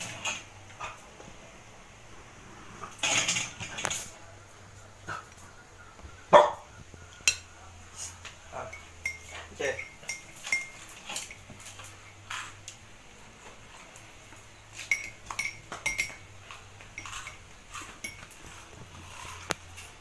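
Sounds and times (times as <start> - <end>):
metal spoon clinking on dishes: 7.2 - 7.5, 8.6 - 12.6, 14.7 - 20.0.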